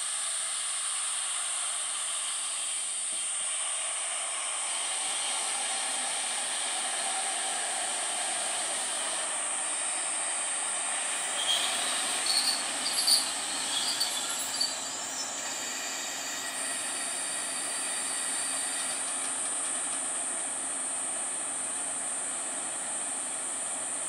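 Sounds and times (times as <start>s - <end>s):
diesel railcar braking: 0.0s - 24.0s
wheel and brake squeals: 11.2s - 19.2s.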